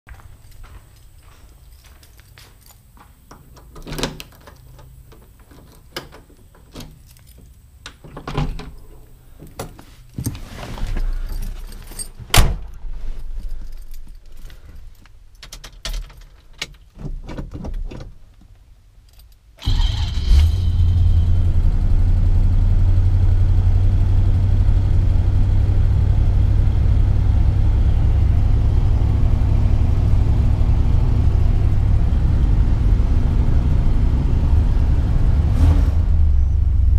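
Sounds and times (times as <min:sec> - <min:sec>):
car door and keys clicking: 0:00.4 - 0:08.9
car engine starting and idling: 0:19.6 - 0:36.9.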